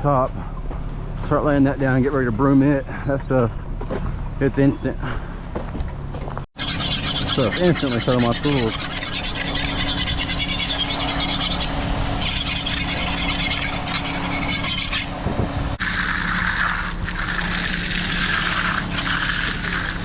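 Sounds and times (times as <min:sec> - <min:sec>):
low engine hum: 0:00.0 - 0:06.5, 0:07.3 - 0:20.0
broom scraping concrete: 0:06.6 - 0:15.2, 0:15.8 - 0:20.0.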